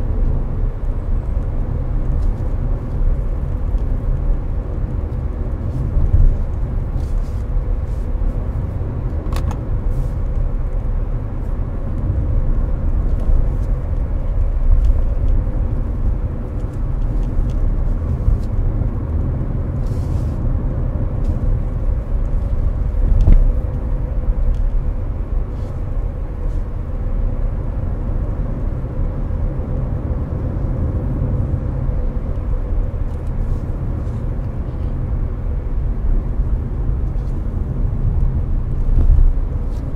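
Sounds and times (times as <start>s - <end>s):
air conditioner fan: 0.0s - 39.9s
road and tyre rumble: 0.0s - 39.9s.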